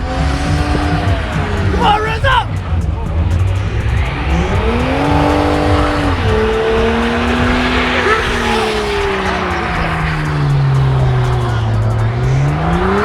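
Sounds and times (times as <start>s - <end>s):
car engine revving hard: 0.0s - 13.0s
tyres squealing: 0.0s - 13.0s.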